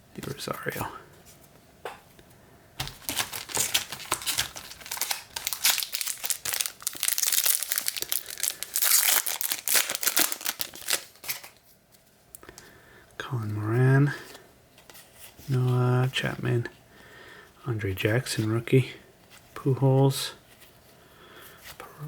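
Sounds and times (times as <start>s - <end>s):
card pack wrapper tearing: 2.8s - 11.6s.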